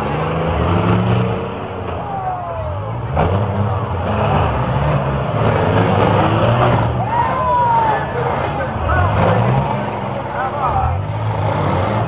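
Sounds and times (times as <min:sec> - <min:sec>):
car engines revving loudly: 0:00.0 - 0:12.0.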